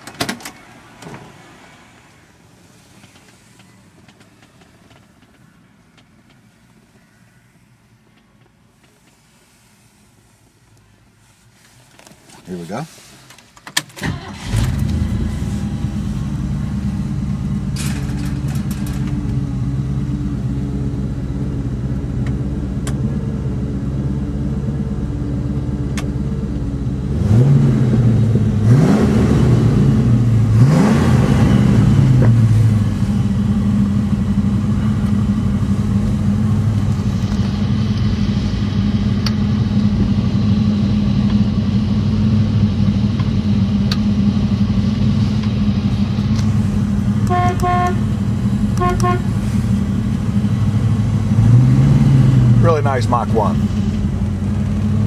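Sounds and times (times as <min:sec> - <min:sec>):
car engine starting and idling: 0:00.0 - 0:55.0
engine revving: 0:14.0 - 0:41.2, 0:43.6 - 0:55.0.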